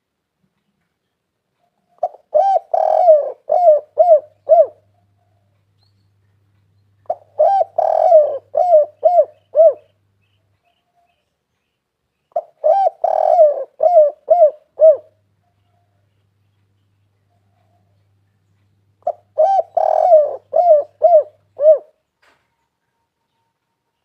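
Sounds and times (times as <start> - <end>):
faint steady low hum: 0.0 - 24.0
dove cooing: 1.8 - 5.5, 7.0 - 10.0, 12.3 - 16.0, 19.0 - 22.0.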